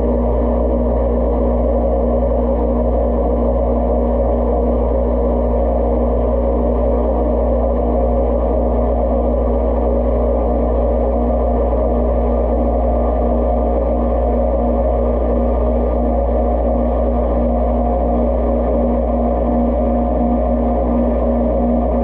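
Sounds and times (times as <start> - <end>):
dishwasher pump motor hum: 0.0 - 22.0.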